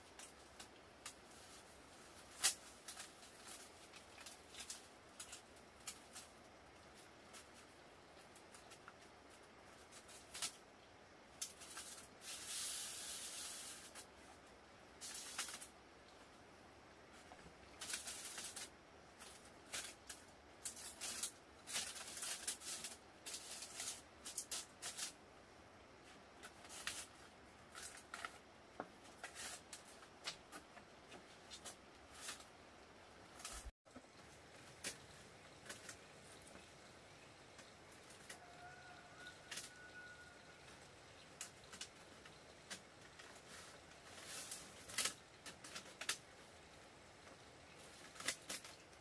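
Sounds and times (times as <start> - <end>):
dry rustling and scraping: 0.0 - 10.6, 11.4 - 16.4, 17.1 - 25.2, 26.0 - 32.6, 37.5 - 46.5, 47.2 - 49.0
long hiss: 0.0 - 30.5.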